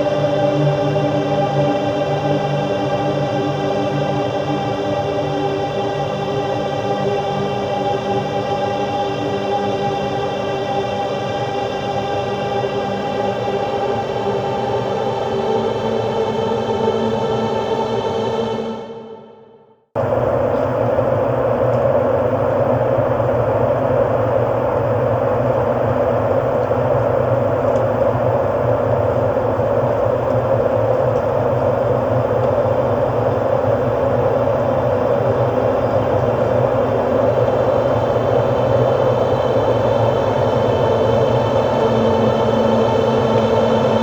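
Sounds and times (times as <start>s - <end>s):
rumbling noise drone: 20.0s - 44.0s.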